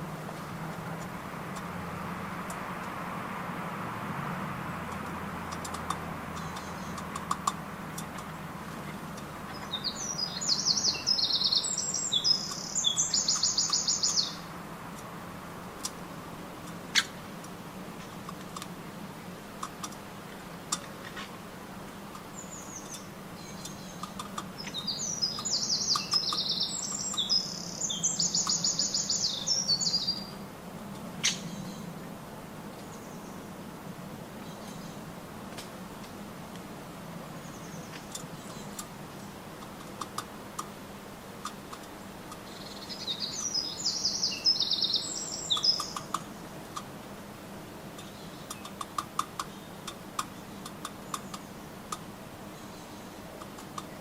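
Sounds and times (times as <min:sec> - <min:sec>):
songbird singing: 0:00.0 - 0:54.0
faint clicks: 0:04.9 - 0:09.8, 0:22.1 - 0:27.3, 0:37.9 - 0:40.8, 0:45.5 - 0:46.9, 0:47.9 - 0:52.1, 0:53.4 - 0:54.0.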